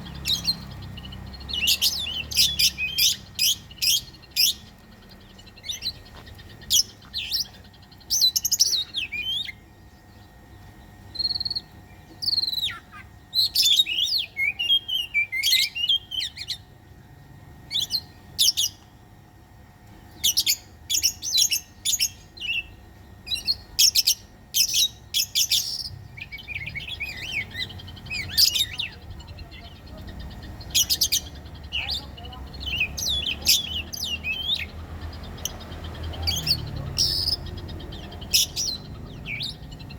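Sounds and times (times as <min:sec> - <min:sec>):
songbird whistles and trills: 0:10.7 - 0:16.7, 0:20.2 - 0:39.9.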